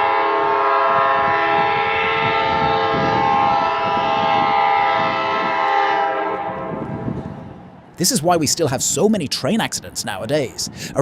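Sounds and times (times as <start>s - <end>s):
train horn blast: 0.0s - 7.6s
moving train rumble: 0.0s - 11.0s.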